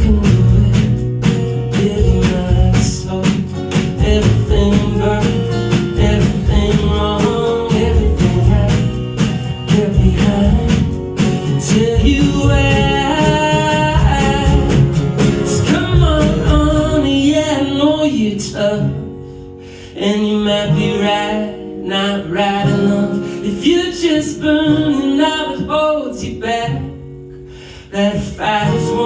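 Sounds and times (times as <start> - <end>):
live folk band playing: 0.0 - 18.0
man singing: 0.0 - 19.1, 19.9 - 27.0, 27.8 - 29.0.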